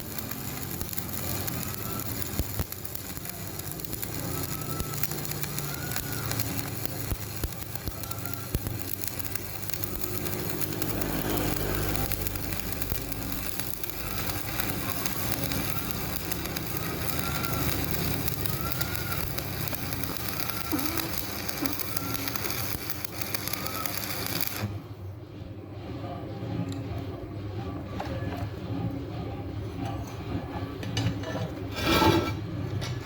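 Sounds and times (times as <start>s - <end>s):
arc welding crackling hiss: 0.0s - 24.8s.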